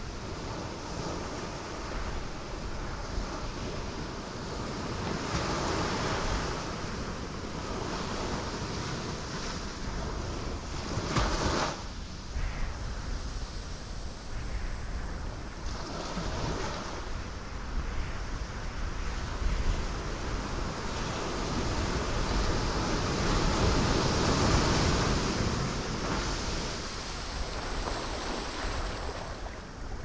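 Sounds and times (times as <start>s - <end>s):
ocean waves breaking on rocks: 15.6s - 30.0s.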